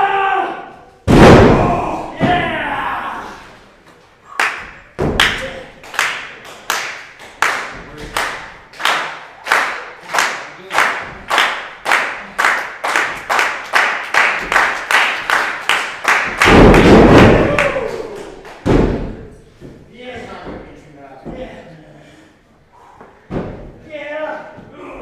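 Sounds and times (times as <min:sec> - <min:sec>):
crowd clapping in unison: 0:04.3 - 0:18.6.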